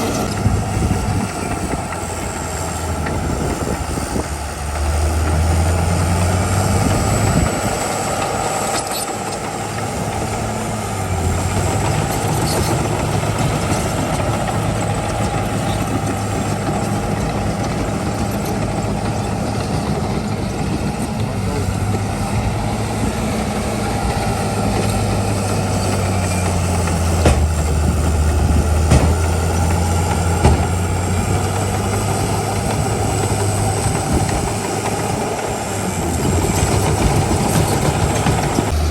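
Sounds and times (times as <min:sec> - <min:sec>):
diesel machinery engine running: 0:00.0 - 0:38.9
sharp knocks: 0:26.9 - 0:31.1.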